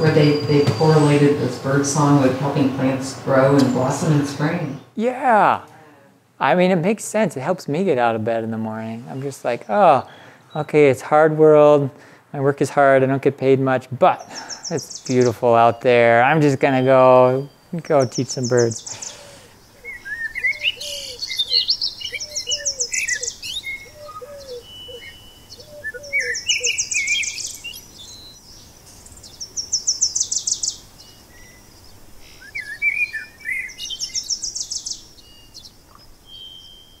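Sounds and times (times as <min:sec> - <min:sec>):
warbled bird phrases: 0:14.0 - 0:28.4
high rapid bird trill: 0:14.2 - 0:37.0.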